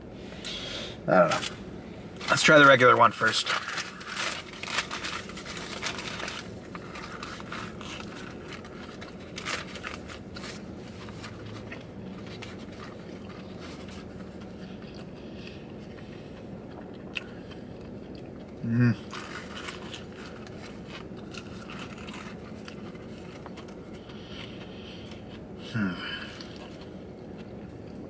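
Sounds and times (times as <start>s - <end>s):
crunchy biting: 3.6s - 28.0s
chewing: 5.6s - 28.0s.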